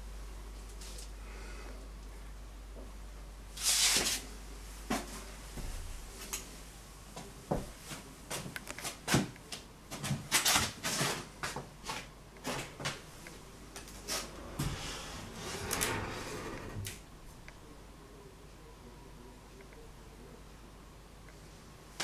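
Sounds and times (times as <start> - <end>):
scraping: 13.9 - 17.1.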